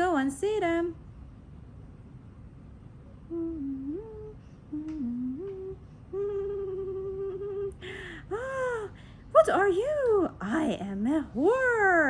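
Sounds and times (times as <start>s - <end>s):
woman humming: 3.3s - 9.0s.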